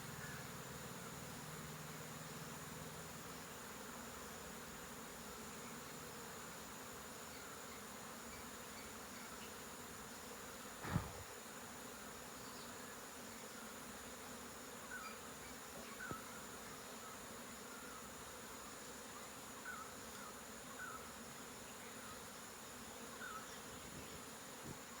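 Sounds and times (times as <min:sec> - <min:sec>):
honeybees buzzing: 0:00.0 - 0:25.0
brief thump: 0:10.8 - 0:11.3.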